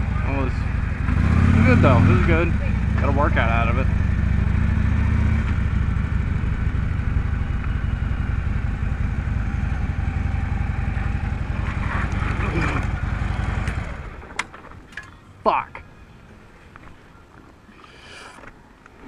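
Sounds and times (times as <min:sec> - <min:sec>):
motorcycle engine running: 0:00.0 - 0:14.6.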